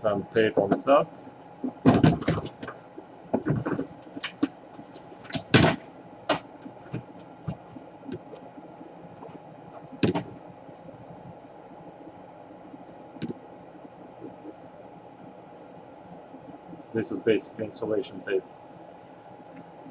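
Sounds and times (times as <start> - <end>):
faint steady hum: 0.0 - 19.9.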